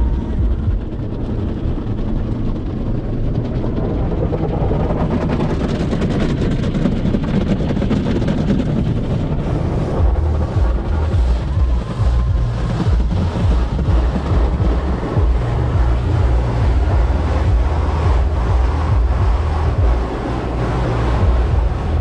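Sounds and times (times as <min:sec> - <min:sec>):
car wash machinery rumble: 0:00.0 - 0:22.0
water pattering on car body: 0:05.3 - 0:22.0.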